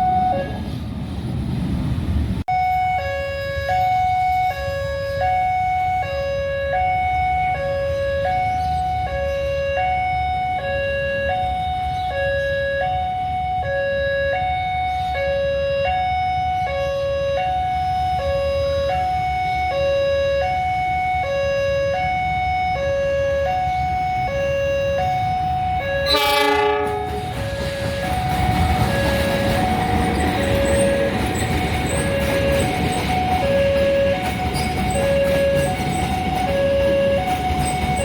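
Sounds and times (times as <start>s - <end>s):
level crossing two-tone alarm: 2.5s - 38.0s
train horn blast: 25.8s - 28.3s.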